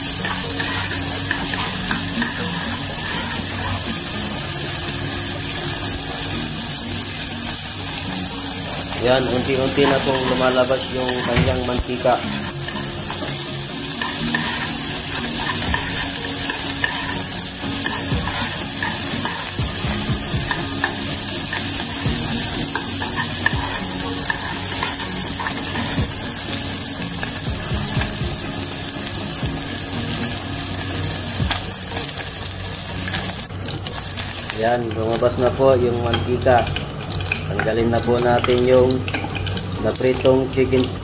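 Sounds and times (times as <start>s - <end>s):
chicken fat sizzling in oil: 0.0s - 41.0s
metal spoon scraping pan: 0.1s - 3.8s, 9.3s - 26.1s.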